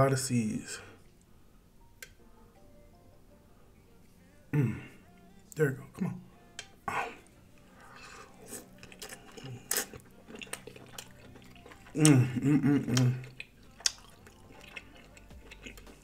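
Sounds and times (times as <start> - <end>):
person humming: 4.2 - 5.6, 6.2 - 8.8, 11.8 - 13.4
chewing with wet mouth smacks: 7.7 - 16.0.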